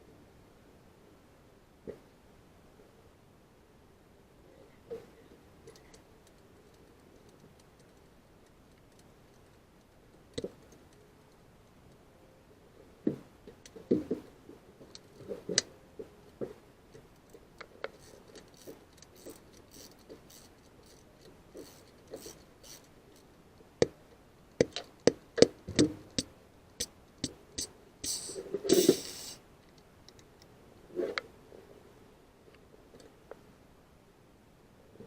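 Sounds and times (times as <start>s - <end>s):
short burst of noise: 27.6s - 29.4s.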